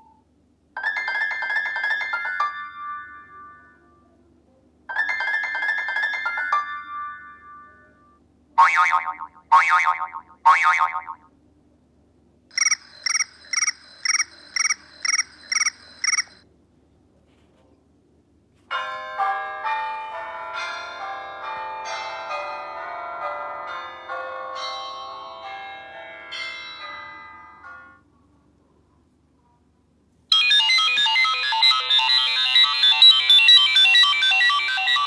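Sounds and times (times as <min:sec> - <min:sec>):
short chiming beeps: 0:12.5 - 0:16.4
bell-like melodic ringtone: 0:12.6 - 0:16.4, 0:30.3 - 0:35.0.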